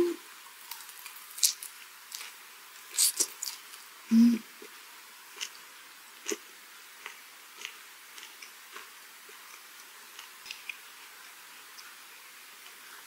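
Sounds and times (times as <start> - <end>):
quiet chewing: 7.0 - 12.0.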